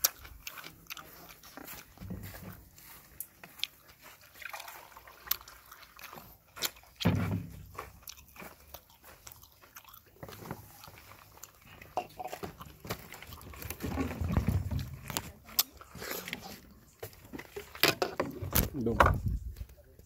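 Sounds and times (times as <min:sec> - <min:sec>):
man chewing and smacking: 0:00.0 - 0:14.4.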